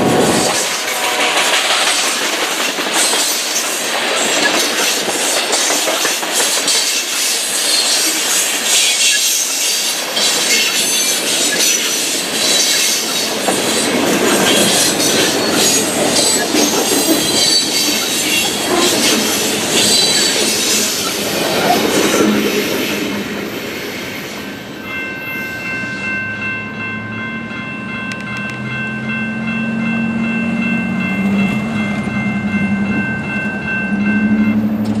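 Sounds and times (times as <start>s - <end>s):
crossing bell ringing: 0.0s - 21.9s, 24.2s - 35.0s
train wheel clatter: 0.0s - 23.5s
train wheel squeal: 3.0s - 23.0s.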